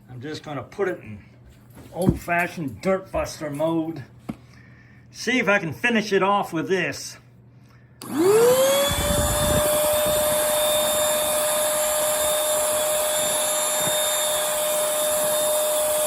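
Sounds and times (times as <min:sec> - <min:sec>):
vacuum motor whine: 0:08.0 - 0:16.0.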